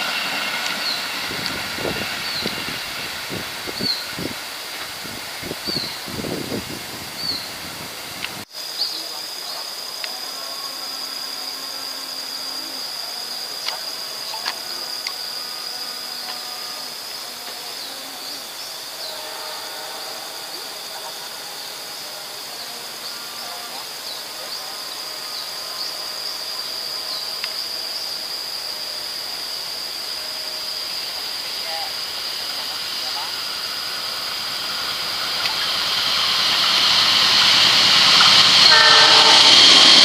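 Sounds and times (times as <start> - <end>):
high-pitched drone: 8.8 - 40.0.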